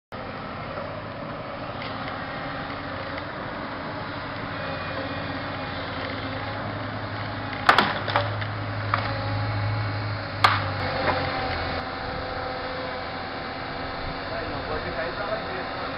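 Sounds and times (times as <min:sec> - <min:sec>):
heavy machine engine running: 0:00.2 - 0:15.9
wood cracking and splintering: 0:07.5 - 0:09.2.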